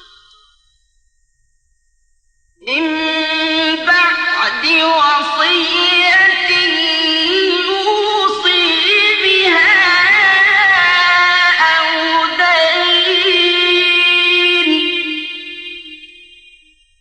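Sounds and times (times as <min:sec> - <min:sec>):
man reciting melodically: 0:02.6 - 0:16.0.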